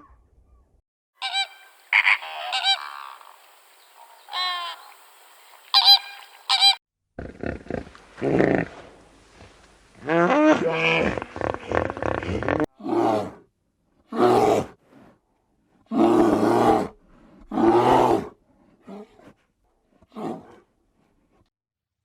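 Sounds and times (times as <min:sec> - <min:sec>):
farm animal calling: 0:01.2 - 0:05.0, 0:05.7 - 0:06.8.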